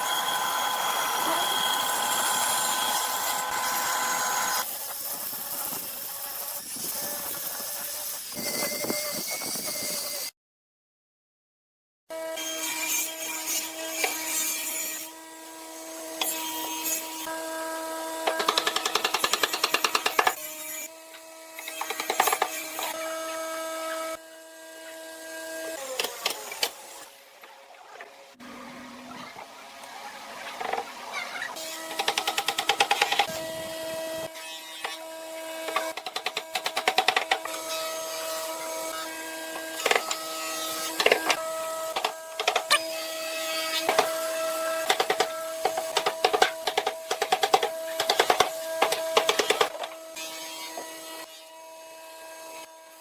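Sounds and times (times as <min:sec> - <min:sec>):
power tool motor whining: 0:00.0 - 0:04.7.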